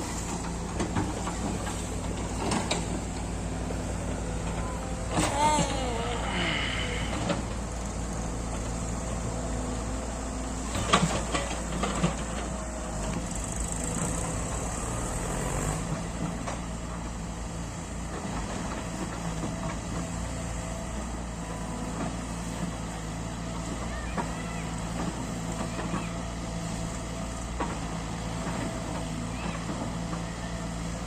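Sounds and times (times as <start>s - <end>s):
diesel machinery engine running: 0.0s - 31.0s.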